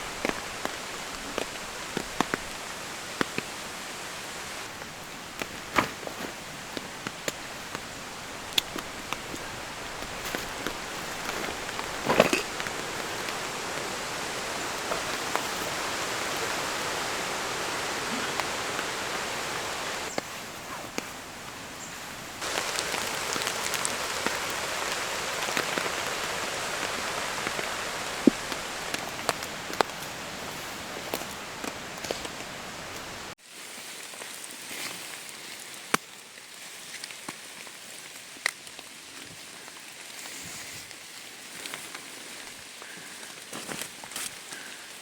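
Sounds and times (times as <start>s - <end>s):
loud rustle: 0.0s - 33.4s
steady rain falling: 0.0s - 33.4s
sharp drips and taps: 22.4s - 33.1s.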